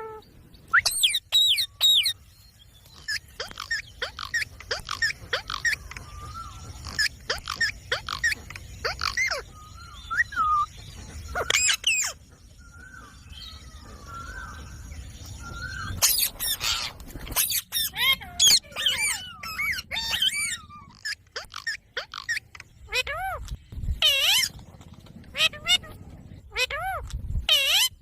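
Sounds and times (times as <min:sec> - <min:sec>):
parrot calling: 0:03.0 - 0:10.7, 0:11.3 - 0:12.2, 0:15.6 - 0:24.6, 0:25.3 - 0:28.0.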